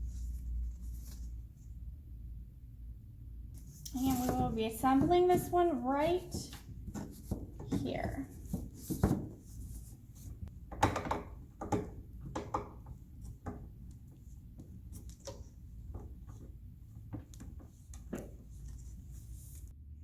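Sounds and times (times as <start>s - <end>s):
low steady hum: 0.0s - 20.0s
plastic parts clicking and knocking: 10.6s - 14.0s.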